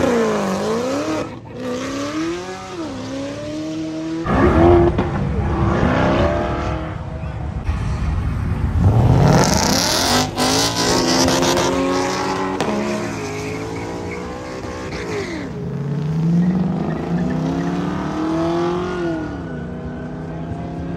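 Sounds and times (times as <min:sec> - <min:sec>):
car engines revving and accelerating: 0:00.0 - 0:20.9
tire squeal: 0:12.6 - 0:15.6, 0:16.3 - 0:20.6.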